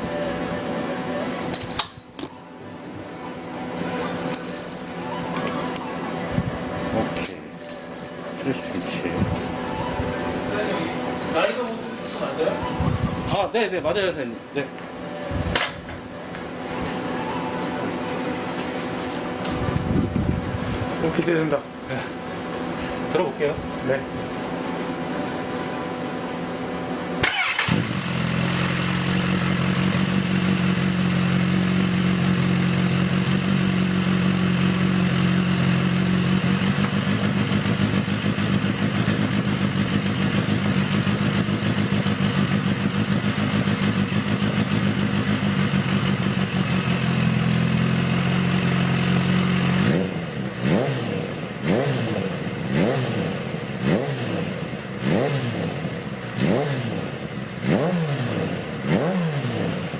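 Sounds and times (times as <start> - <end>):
motorcycle engine revving: 3.7 - 13.5, 27.1 - 59.9.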